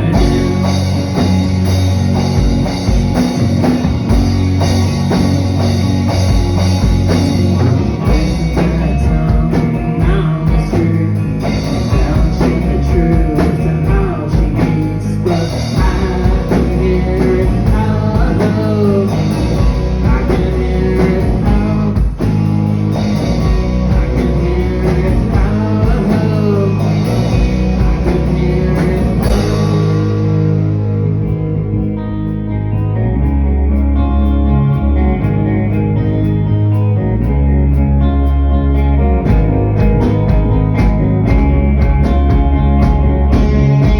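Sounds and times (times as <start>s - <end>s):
person singing: 0.0s - 1.4s, 7.6s - 22.5s, 23.2s - 30.7s
rock band playing: 0.0s - 43.9s.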